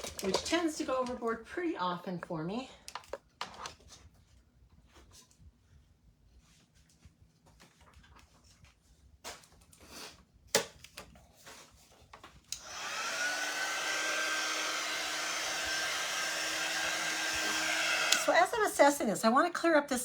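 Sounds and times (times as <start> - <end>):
hair dryer running with whine: 12.5 - 18.8.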